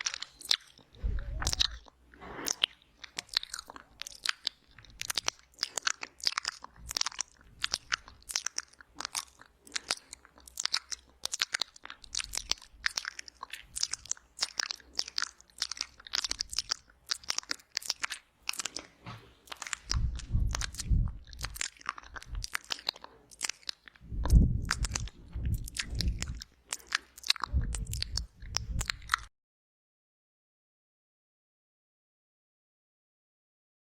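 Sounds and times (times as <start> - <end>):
lip smacks: 0.0 - 29.3
tongue clicks: 0.0 - 29.3
deep muffled rumbling: 1.0 - 1.9, 19.8 - 22.6, 24.0 - 26.5, 27.4 - 29.3.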